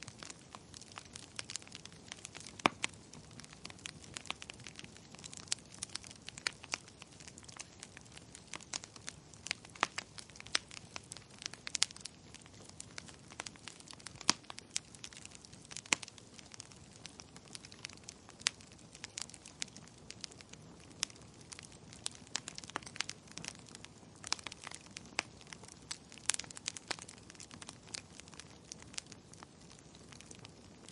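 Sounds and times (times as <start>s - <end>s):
firewood crackling and popping: 0.0s - 30.9s.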